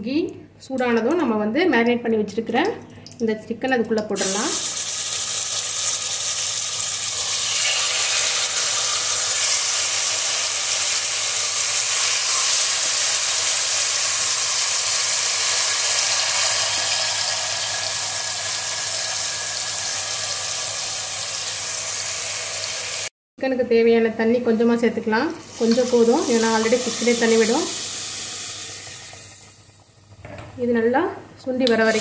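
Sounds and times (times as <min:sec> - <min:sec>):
chicken sizzling in oil: 0:04.2 - 0:23.1.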